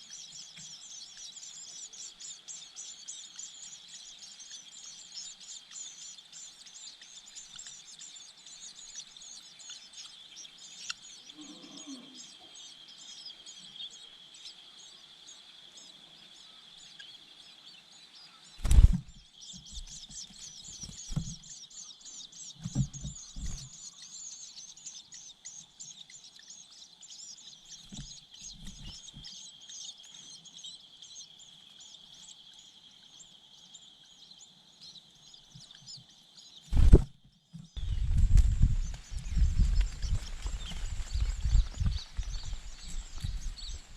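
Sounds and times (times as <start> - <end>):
nestlings begging with high chirping: 0.0 - 43.9.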